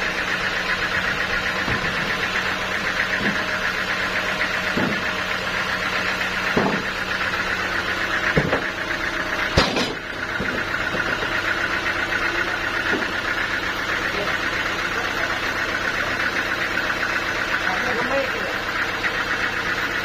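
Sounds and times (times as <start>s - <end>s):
engine idling: 0.0s - 20.0s
sharp knocks: 1.5s - 2.2s, 4.6s - 5.2s, 6.5s - 7.0s, 8.3s - 8.8s, 9.5s - 11.3s.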